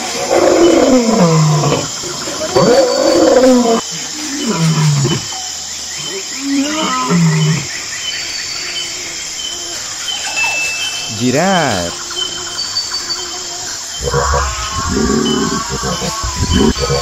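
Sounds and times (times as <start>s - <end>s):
birds and insects chirping: 0.0s - 17.0s
lion roaring and grunting: 14.0s - 17.0s.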